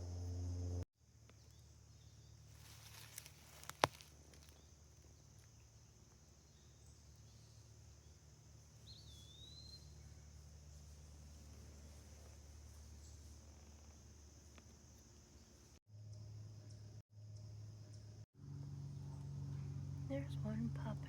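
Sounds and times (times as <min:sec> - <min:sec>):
steady high drone: 0:00.0 - 0:00.8.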